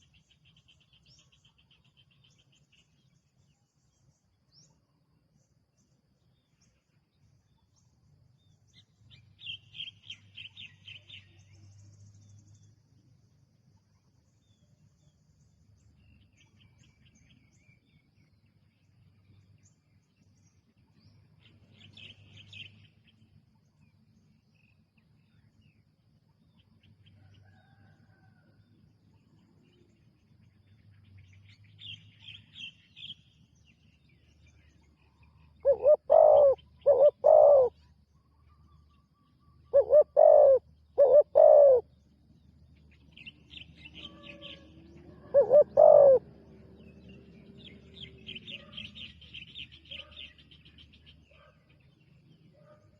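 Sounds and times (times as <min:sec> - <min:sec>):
birds chirping trills: 0:29.3 - 0:52.9.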